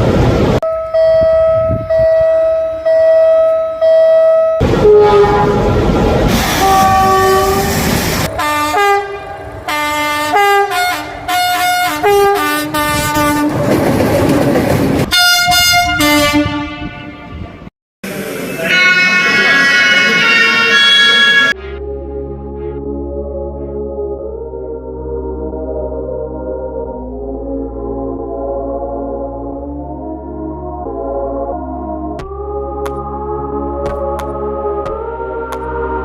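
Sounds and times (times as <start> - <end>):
train running: 4.6 - 15.6, 18.1 - 21.6
locomotive horn blasts: 4.7 - 6.0, 6.6 - 13.6, 15.1 - 17.6.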